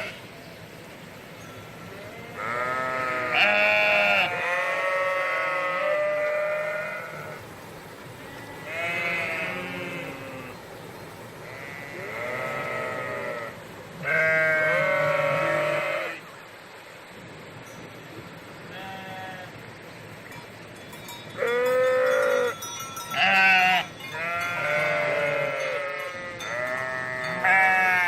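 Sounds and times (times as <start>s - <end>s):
sheep or goat bleating: 1.9s - 7.4s, 8.6s - 10.6s, 11.4s - 16.2s, 18.7s - 19.5s, 23.2s - 28.0s.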